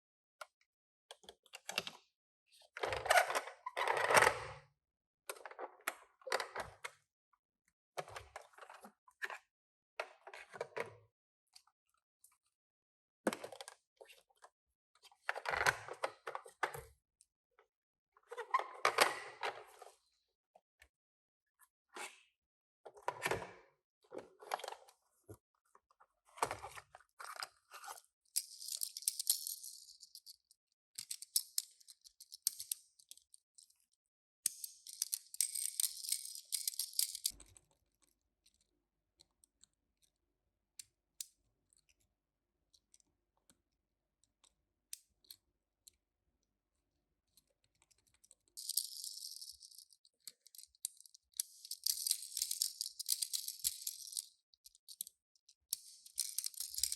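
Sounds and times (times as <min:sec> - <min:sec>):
small clicks and knocks: 0:28.4 - 0:33.9, 0:34.5 - 0:40.1, 0:47.3 - 0:56.9.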